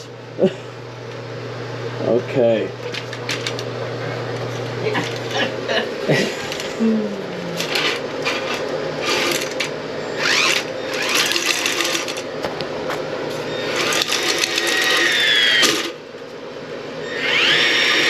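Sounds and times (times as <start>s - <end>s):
drain auger motor whine: 2.8s - 12.7s, 13.3s - 16.0s, 16.9s - 18.0s.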